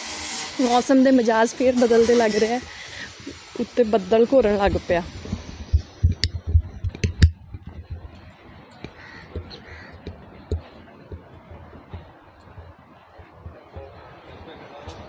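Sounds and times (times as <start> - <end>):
sharp knocks and clicks: 5.3 - 13.9
faint bird calling: 8.9 - 10.0.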